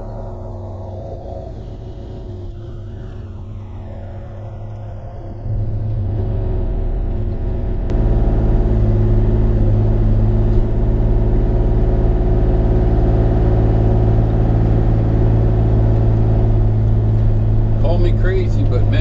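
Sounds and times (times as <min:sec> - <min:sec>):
excavator diesel engine running: 0:04.8 - 0:19.0.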